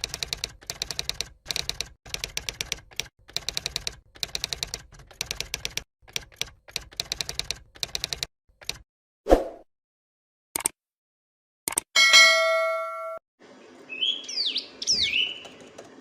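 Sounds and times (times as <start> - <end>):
bird singing rapid trills: 13.6 - 15.8.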